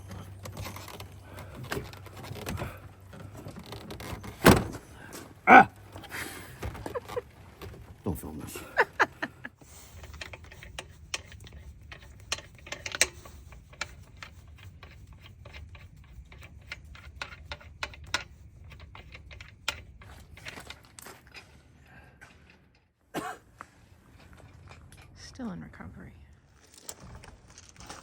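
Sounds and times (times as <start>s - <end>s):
tools clicking and knocking: 9.9s - 21.4s.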